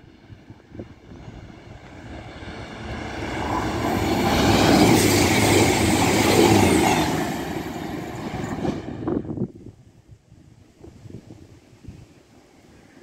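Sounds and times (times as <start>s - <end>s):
train passing at speed: 0.0s - 9.8s.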